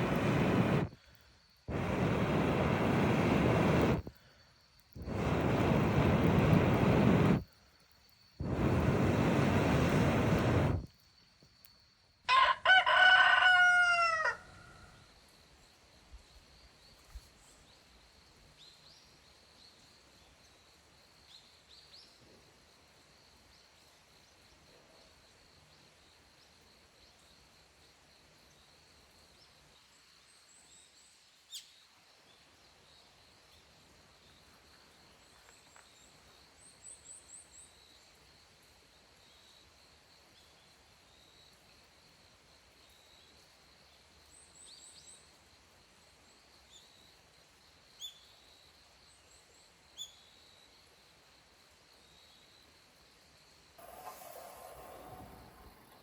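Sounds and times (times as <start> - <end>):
rooster crowing: 12.3 - 14.9
faint high bird chirps: 48.0 - 48.4, 50.0 - 50.4.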